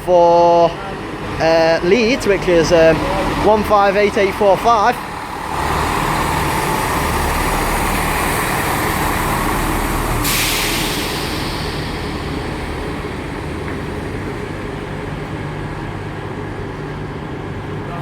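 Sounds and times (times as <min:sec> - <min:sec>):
train diesel engines running: 0:00.0 - 0:18.0
sharp hiss of air: 0:08.7 - 0:13.1.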